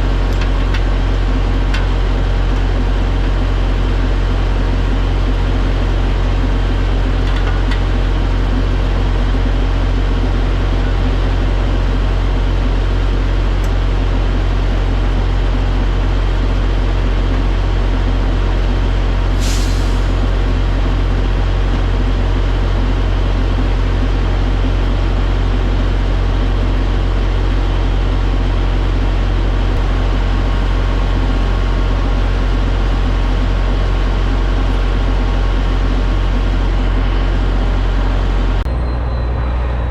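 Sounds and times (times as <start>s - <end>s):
truck diesel engine droning: 0.0s - 39.9s
hiss of air: 19.4s - 20.2s.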